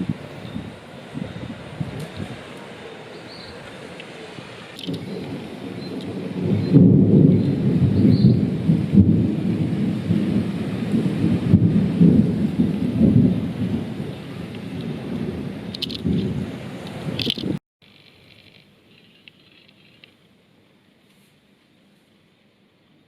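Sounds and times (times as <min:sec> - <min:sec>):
rolling thunder: 0:00.0 - 0:02.5, 0:04.8 - 0:17.6.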